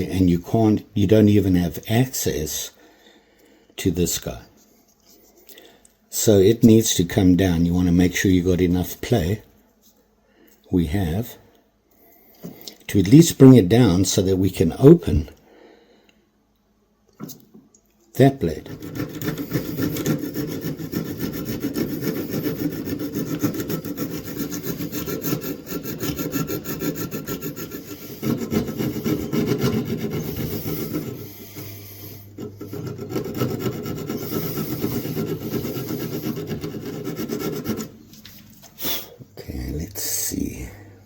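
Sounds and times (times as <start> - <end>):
file rasping on steel: 18.5 - 38.0.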